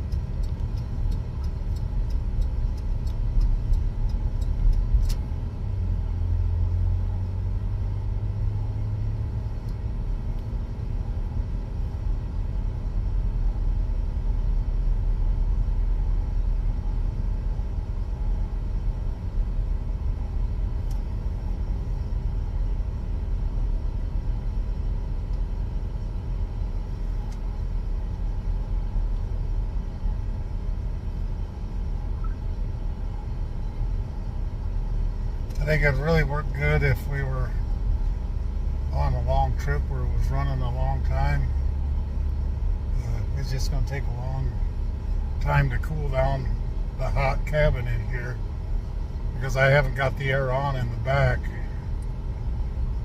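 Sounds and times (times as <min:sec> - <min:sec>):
light ticks: 0:00.0 - 0:05.3, 0:09.6 - 0:10.6, 0:20.8 - 0:21.1, 0:25.3 - 0:25.5, 0:27.1 - 0:27.6
car road and engine rumble: 0:00.0 - 0:53.0.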